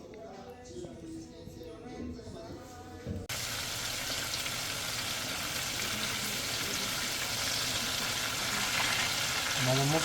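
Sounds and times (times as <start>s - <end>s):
food sizzling in a pan: 3.3s - 10.0s.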